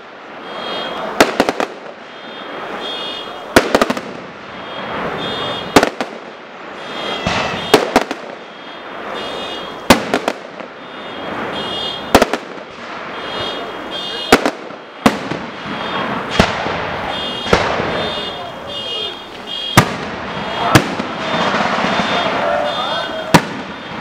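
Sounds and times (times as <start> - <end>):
fireworks bursting with loud bangs: 0.0 - 24.0
quick firework cracks: 14.3 - 18.3, 19.3 - 22.7, 23.3 - 24.0.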